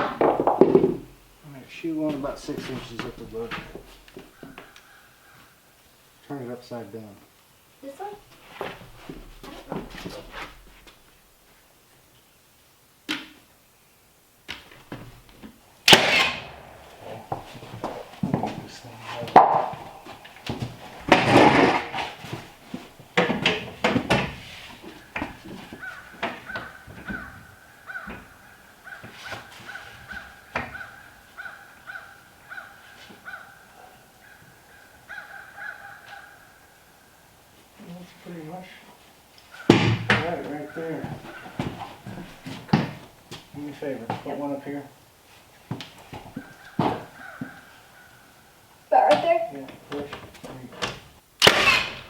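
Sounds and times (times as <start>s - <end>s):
wood and tools knocking: 0.0s - 1.2s, 14.5s - 31.1s.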